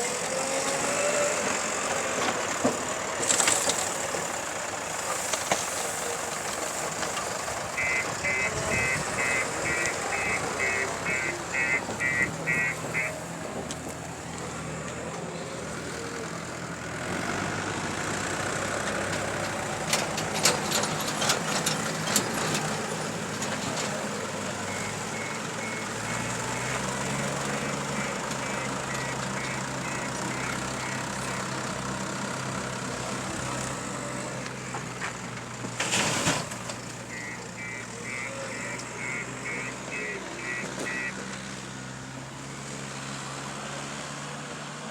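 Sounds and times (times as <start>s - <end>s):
diesel engine revving: 0.0s - 44.9s
reversing alarm beeps: 7.8s - 13.2s, 24.6s - 31.4s, 37.1s - 41.2s.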